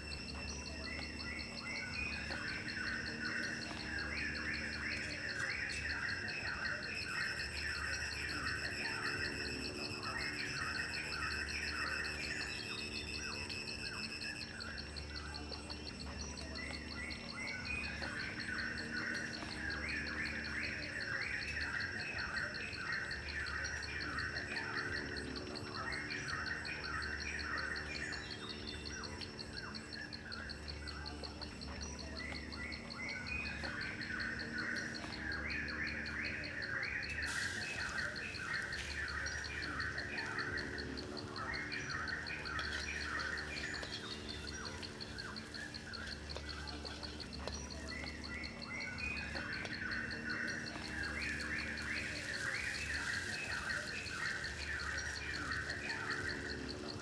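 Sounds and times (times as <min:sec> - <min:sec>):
birds chirping: 0:00.0 - 0:57.0
pulsing insect trill: 0:00.0 - 0:57.0.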